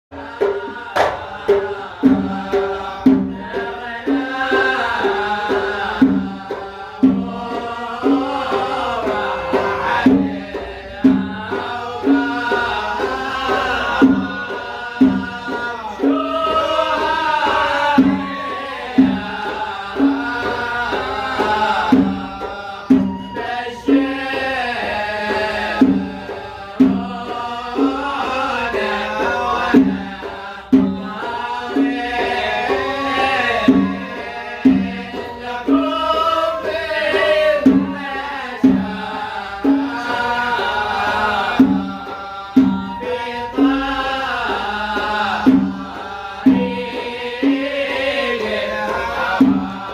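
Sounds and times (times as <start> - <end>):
hand drums beating: 0.1 - 49.9
ornamented melody: 30.9 - 48.6.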